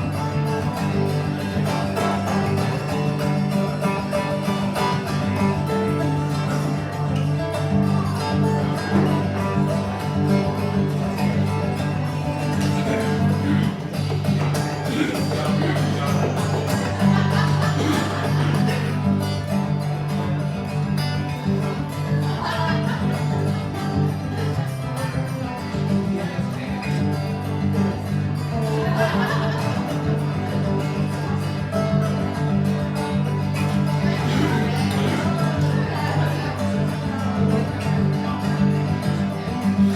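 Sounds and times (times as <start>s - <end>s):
live guitar music: 0.0s - 39.9s.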